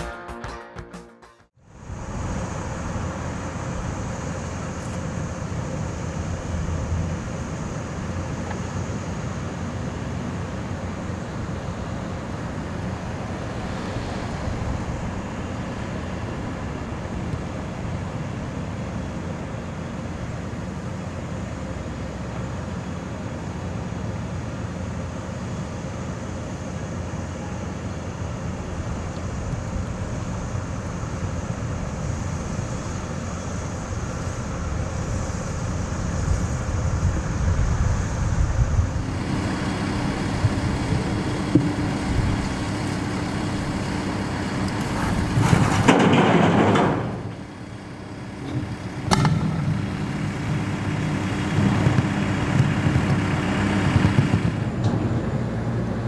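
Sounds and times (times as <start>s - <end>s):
construction machinery engine running: 1.6s - 56.0s
sharp knock: 49.1s - 49.7s.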